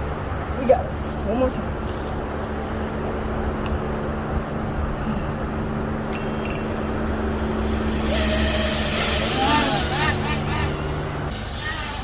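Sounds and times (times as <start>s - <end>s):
low engine rumble: 0.0s - 12.0s
hiss: 11.3s - 12.0s.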